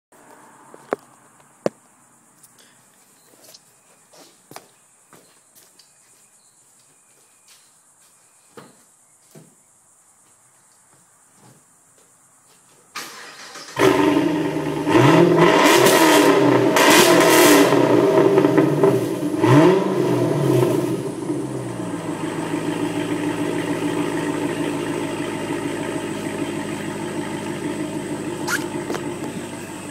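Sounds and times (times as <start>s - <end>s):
car engine revving and idling: 13.7s - 29.9s.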